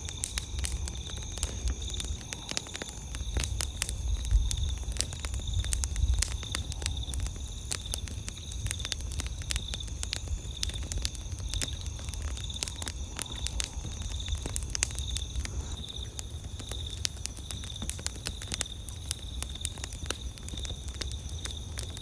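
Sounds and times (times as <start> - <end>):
campfire crackling: 0.0 - 22.0
insect chirping: 0.0 - 22.0.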